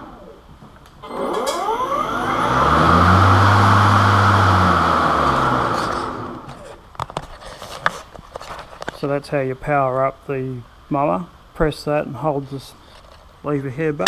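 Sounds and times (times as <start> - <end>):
electric lawn mower whine: 1.0 - 6.6.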